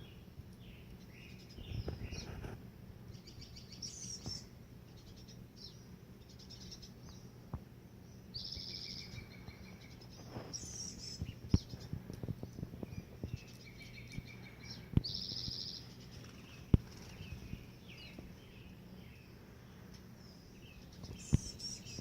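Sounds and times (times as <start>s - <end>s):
small birds chirping: 0.0s - 22.0s
steady low hum: 0.0s - 22.0s
bird trill: 3.1s - 7.3s, 8.1s - 11.9s, 12.8s - 22.0s.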